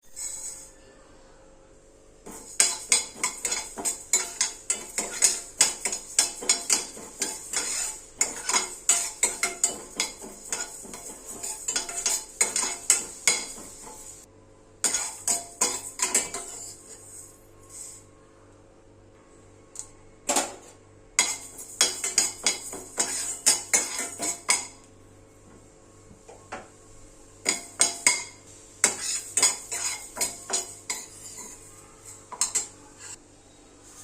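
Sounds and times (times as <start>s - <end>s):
metal utensil scraping a pan: 0.0s - 0.7s, 2.2s - 18.0s, 21.2s - 24.7s, 27.5s - 33.2s.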